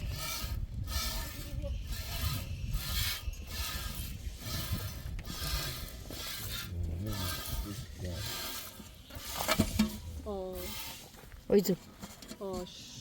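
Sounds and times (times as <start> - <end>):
scraping strokes: 0.0 - 11.3.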